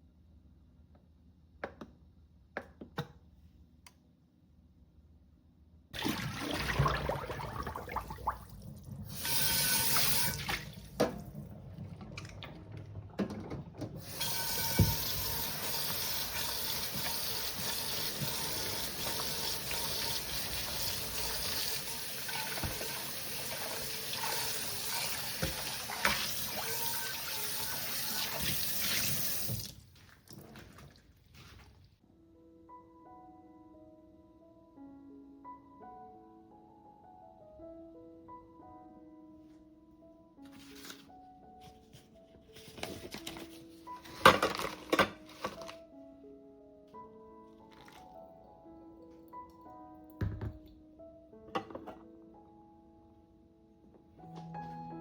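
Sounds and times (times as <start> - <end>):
tap running into a sink: 14.0 - 29.8.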